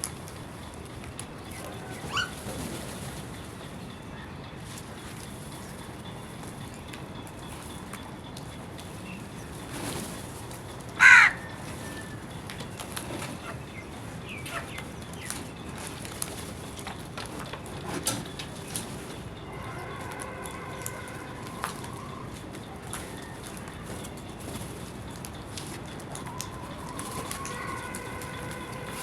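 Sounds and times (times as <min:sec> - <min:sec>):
crow cawing: 0:11.0 - 0:12.1, 0:26.3 - 0:29.0.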